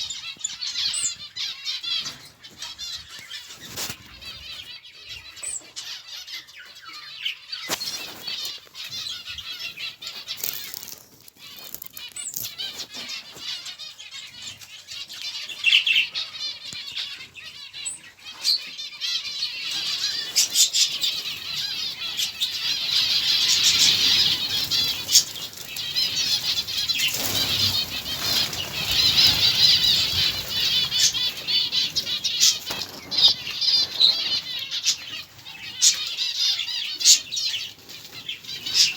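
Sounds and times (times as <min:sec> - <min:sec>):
small birds chirping: 0:00.0 - 0:38.9
wings fluttering: 0:07.7 - 0:13.6, 0:19.8 - 0:36.2.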